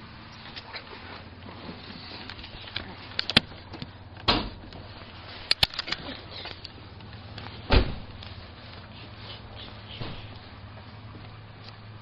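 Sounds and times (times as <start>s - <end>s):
car door shutting thump: 4.3s - 4.6s, 7.7s - 8.1s.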